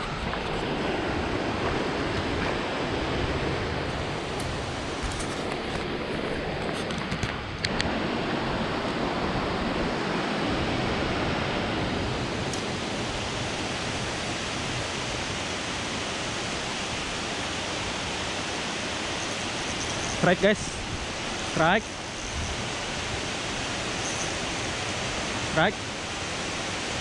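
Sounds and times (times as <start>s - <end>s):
waterfall rushing: 7.9s - 27.0s.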